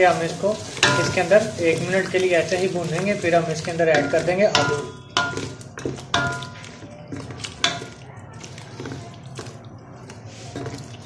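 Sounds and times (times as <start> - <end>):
carrots frying in oil: 0.0 - 11.0
wooden spoon knocking metal pot: 0.8 - 1.5, 2.9 - 8.1.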